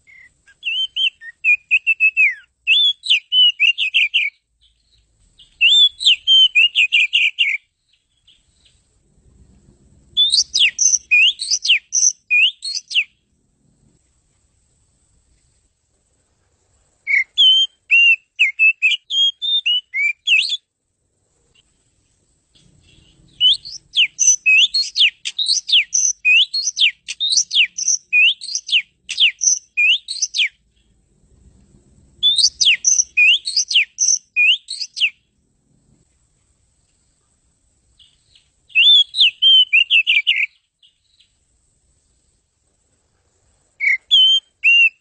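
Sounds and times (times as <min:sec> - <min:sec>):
bird singing whistled phrases: 0:00.1 - 0:08.8, 0:10.2 - 0:13.2, 0:17.0 - 0:20.7, 0:22.9 - 0:30.6, 0:32.2 - 0:35.2, 0:38.0 - 0:41.4, 0:43.8 - 0:45.0.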